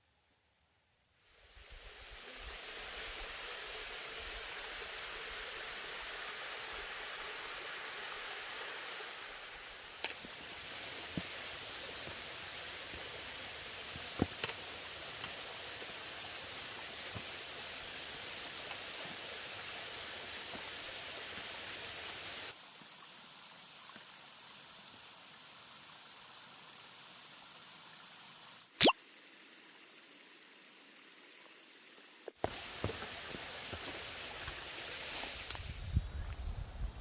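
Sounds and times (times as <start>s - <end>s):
stream rushing over rocks: 1.7s - 25.1s, 32.4s - 35.8s.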